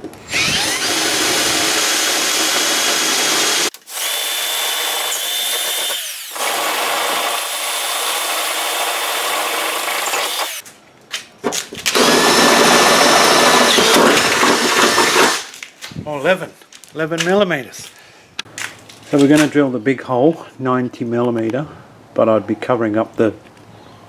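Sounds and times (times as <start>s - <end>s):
cordless drill drilling steel: 0.3s - 10.6s, 11.9s - 15.5s.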